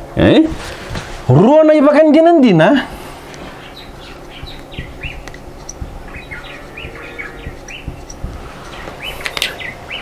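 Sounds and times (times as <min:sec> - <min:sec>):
birds chirping: 0:02.8 - 0:10.0
low background rumble: 0:02.8 - 0:10.0
soft low knocks: 0:03.9 - 0:09.0.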